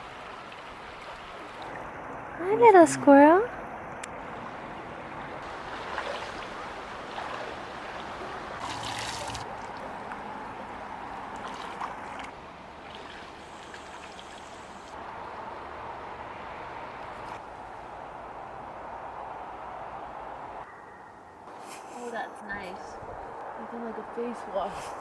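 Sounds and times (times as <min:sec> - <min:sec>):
flowing river water: 0:00.0 - 0:19.2.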